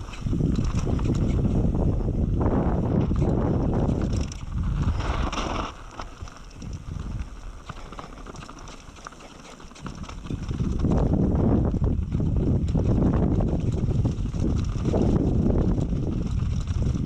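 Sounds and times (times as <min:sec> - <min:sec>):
mountain bike rattling and clicking: 0:00.0 - 0:17.0
wind buffeting microphone: 0:00.0 - 0:17.0.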